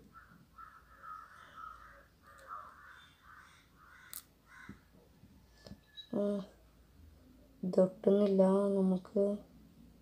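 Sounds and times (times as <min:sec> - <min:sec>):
bird giving harsh calls: 0:00.1 - 0:04.9.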